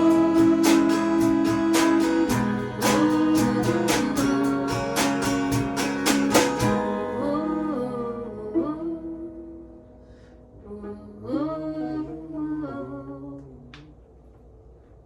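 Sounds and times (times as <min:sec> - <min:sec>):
acoustic guitar strumming: 0:00.0 - 0:08.3
long held notes: 0:00.0 - 0:09.8.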